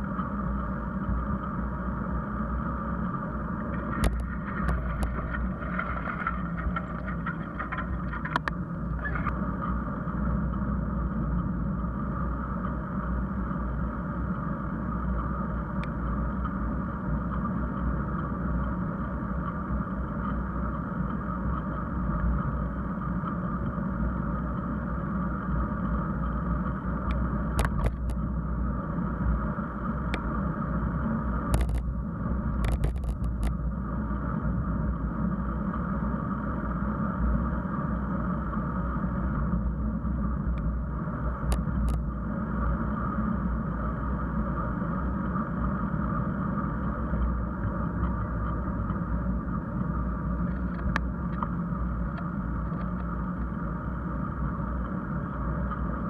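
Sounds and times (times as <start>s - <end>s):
wind and bicycle road noise: 0.0s - 56.0s
sharp clicks and rattles: 3.7s - 9.3s, 31.6s - 31.9s, 32.6s - 33.5s.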